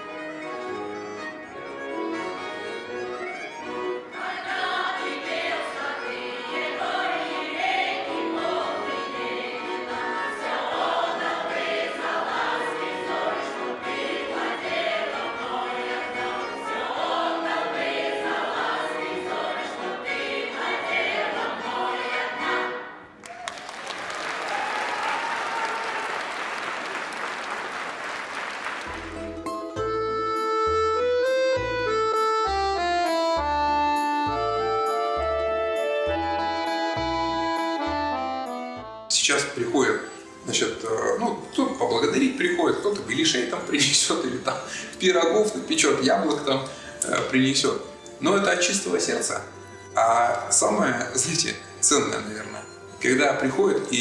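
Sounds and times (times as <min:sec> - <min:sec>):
group singing with instruments: 0:04.1 - 0:23.0
audience applause: 0:23.2 - 0:29.2.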